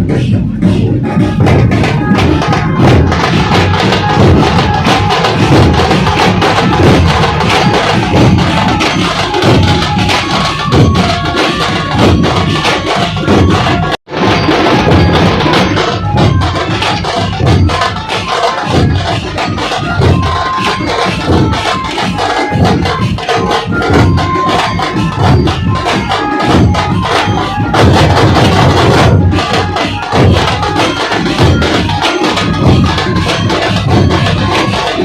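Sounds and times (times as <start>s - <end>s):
dhol drums fast rhythm: 0.0s - 35.0s
sharp tasha drum strokes: 0.0s - 35.0s.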